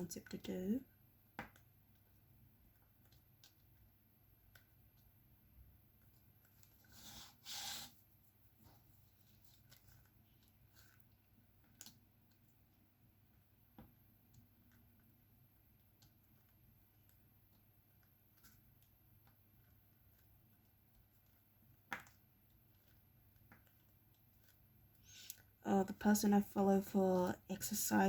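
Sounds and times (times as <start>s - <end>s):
small clicks and taps of pen: 1.3s - 2.1s.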